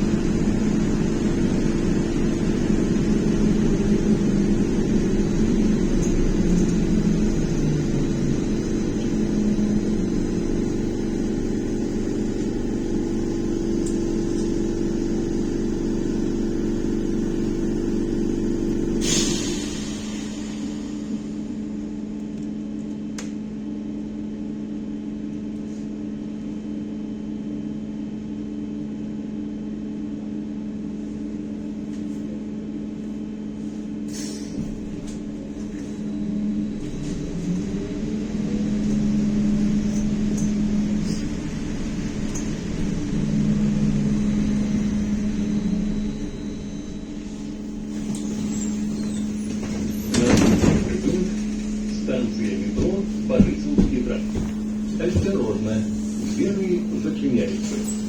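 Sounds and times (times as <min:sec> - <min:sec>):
road rumble: 0:00.0 - 0:14.6, 0:36.6 - 0:58.0
electrical hum: 0:00.0 - 0:19.1, 0:34.6 - 0:58.0
click: 0:13.8 - 0:14.0.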